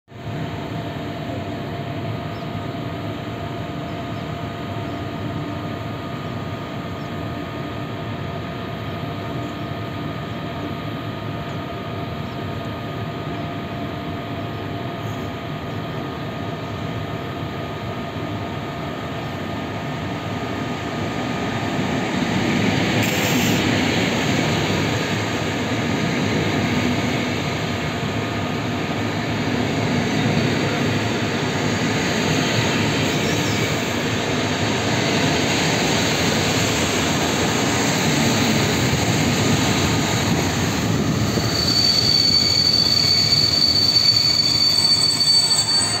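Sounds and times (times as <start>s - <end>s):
train coaches rolling on rails: 8.9s - 46.0s
high wheel squeal: 41.1s - 46.0s.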